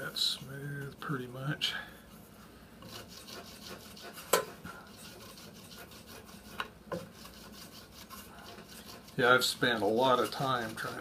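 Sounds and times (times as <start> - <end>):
rubber stick scrubbing wood: 2.9 - 11.0.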